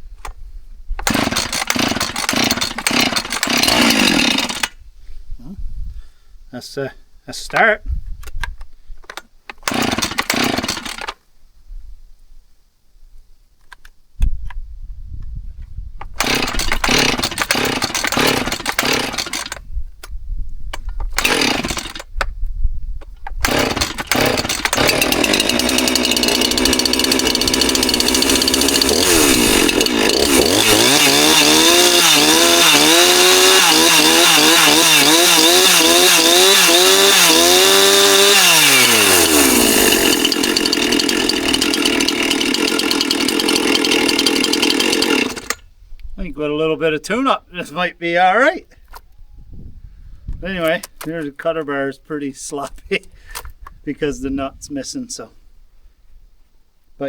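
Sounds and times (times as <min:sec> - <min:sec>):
chainsaw starting and revving: 0:01.0 - 0:04.8, 0:09.6 - 0:11.2, 0:16.2 - 0:19.6, 0:21.1 - 0:22.1, 0:23.4 - 0:45.6.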